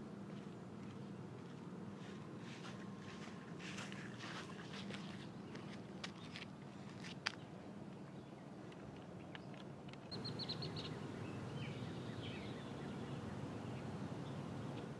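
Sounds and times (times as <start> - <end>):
birds chirping: 7.3 - 14.9.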